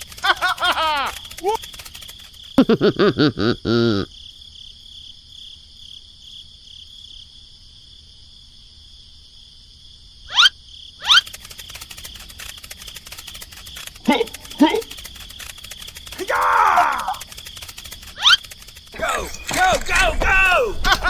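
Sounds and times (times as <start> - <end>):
rapid buzzing rattle: 0.0 - 2.9, 11.0 - 20.0
insect chirring: 0.0 - 21.0.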